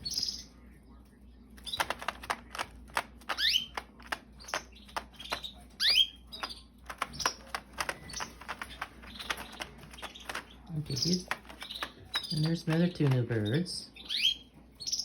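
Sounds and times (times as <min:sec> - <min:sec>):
canaries chirping: 0:00.0 - 0:00.7, 0:01.6 - 0:15.0
sharp clicks and taps: 0:01.6 - 0:05.5, 0:06.4 - 0:13.3.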